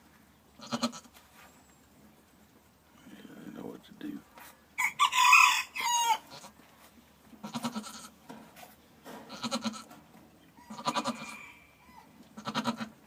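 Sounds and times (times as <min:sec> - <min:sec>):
goat bleating: 0:00.6 - 0:01.2, 0:04.8 - 0:06.6, 0:07.4 - 0:08.2, 0:09.3 - 0:10.0, 0:10.6 - 0:13.0.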